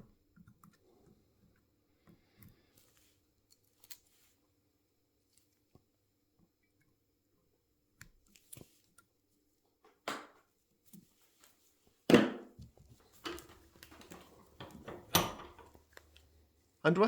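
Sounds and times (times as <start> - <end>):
small knocks and rattles: 12.5 - 16.4.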